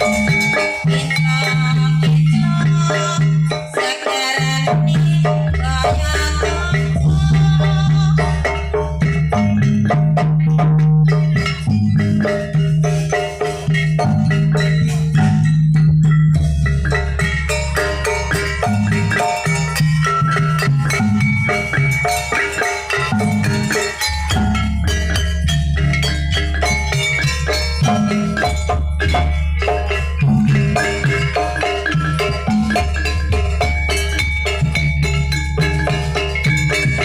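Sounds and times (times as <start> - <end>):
drums: 0.0 - 37.0
metallophones playing fast melody: 0.0 - 37.0.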